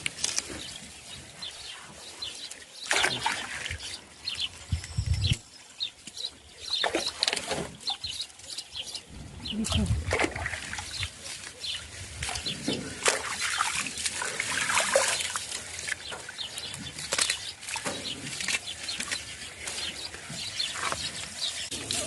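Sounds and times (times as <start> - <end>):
clicks and rustles: 0.0 - 0.7
birds chirping: 0.0 - 22.0.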